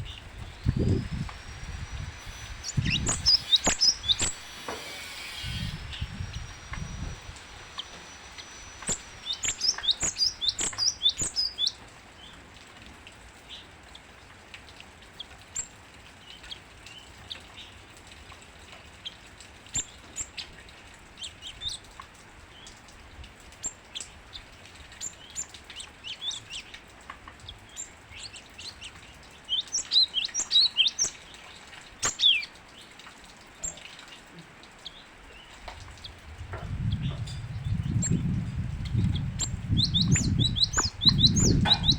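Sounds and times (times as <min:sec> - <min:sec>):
bird chirps: 0:00.0 - 0:11.8, 0:27.7 - 0:32.5, 0:36.9 - 0:41.9
bird singing high sharp notes: 0:00.5 - 0:11.7, 0:29.5 - 0:31.2, 0:39.1 - 0:41.9.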